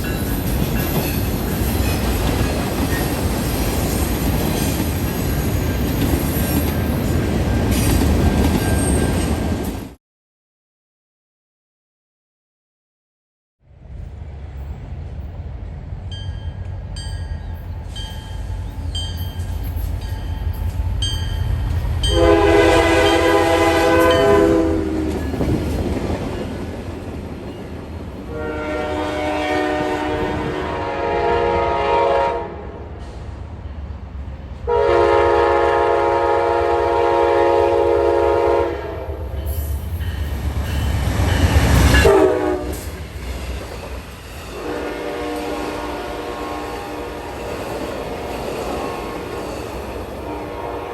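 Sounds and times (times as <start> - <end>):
train rumbling past: 0.0 - 10.0, 13.6 - 50.9
train horn blasts: 22.0 - 25.5, 28.3 - 32.9, 34.7 - 39.3, 41.9 - 42.9, 44.5 - 47.4, 50.2 - 50.9.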